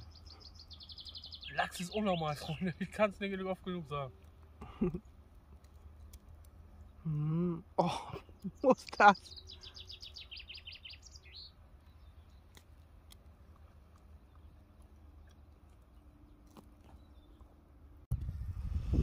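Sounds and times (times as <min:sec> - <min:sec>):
songbird trilling: 0:00.0 - 0:03.0, 0:08.4 - 0:12.6
faint low outdoor rumble: 0:00.0 - 0:19.0.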